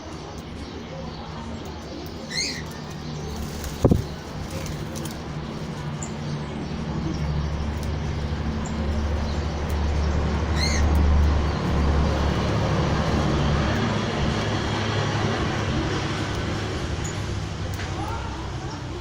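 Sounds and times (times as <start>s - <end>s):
vehicle engine rumble passing: 2.0s - 19.0s
high falling bird call: 2.2s - 4.0s.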